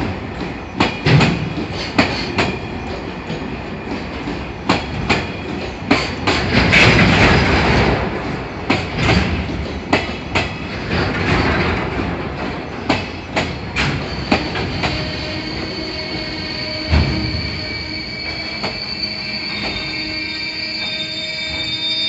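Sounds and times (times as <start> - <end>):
train wheels clacking over rail joints: 0.0 - 20.0
steady high squeal: 13.6 - 22.0.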